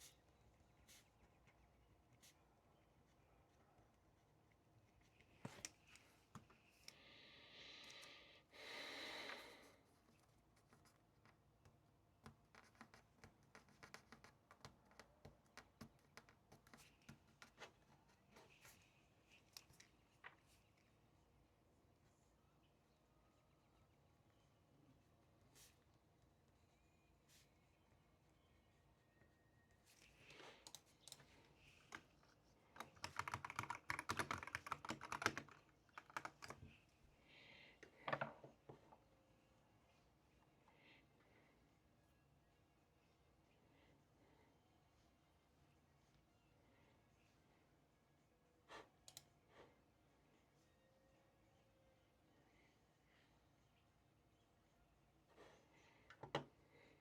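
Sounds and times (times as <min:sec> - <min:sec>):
typing on computer keyboard: 0:12.2 - 0:17.5, 0:32.7 - 0:36.7.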